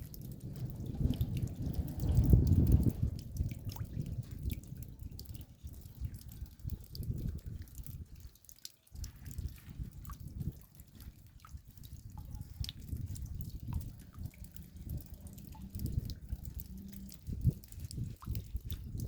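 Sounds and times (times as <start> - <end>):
steady low rumble: 0.0 - 7.5, 9.4 - 19.0
raindrops dripping: 0.0 - 19.0.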